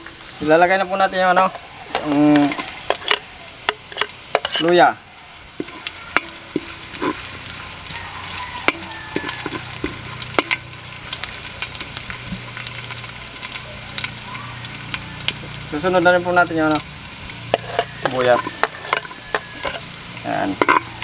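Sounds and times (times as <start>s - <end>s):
garlic sizzling in hot oil: 0.0s - 21.0s
spatula scraping a wok: 1.3s - 4.9s, 5.5s - 11.1s, 17.2s - 21.0s.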